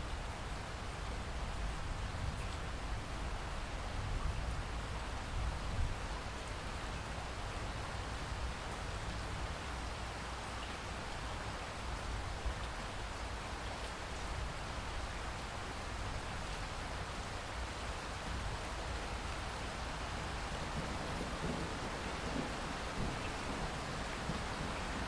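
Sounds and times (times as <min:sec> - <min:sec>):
rain hissing: 0:20.1 - 0:25.0.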